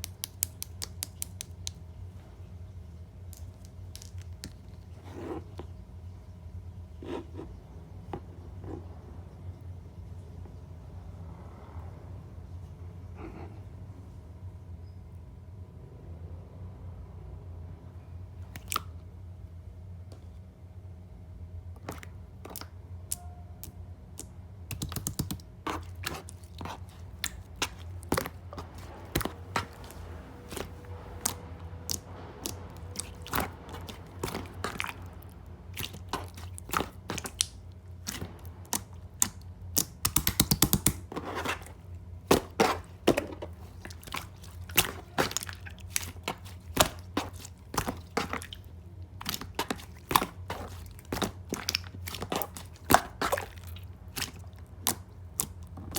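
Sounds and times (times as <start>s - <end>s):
slime sticky clicks and wet pops: 0.0s - 1.8s, 18.5s - 19.0s, 21.8s - 35.2s, 35.8s - 41.0s, 49.2s - 55.9s.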